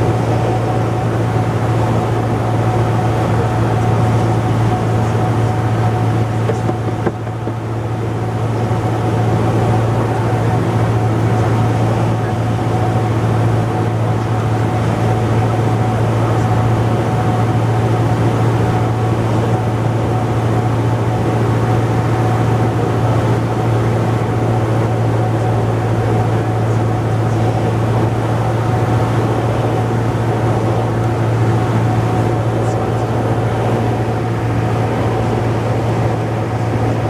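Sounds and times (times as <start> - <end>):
airplane engine and propeller droning: 0.0 - 37.0
thin steady whine: 0.0 - 37.0.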